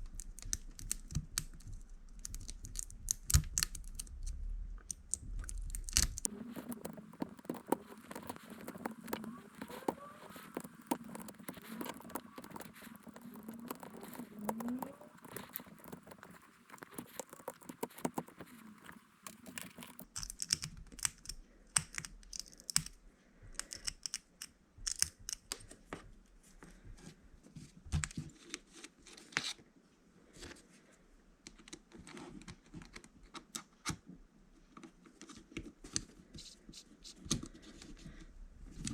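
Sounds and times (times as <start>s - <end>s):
small objects clicking and tapping: 0.0s - 25.7s.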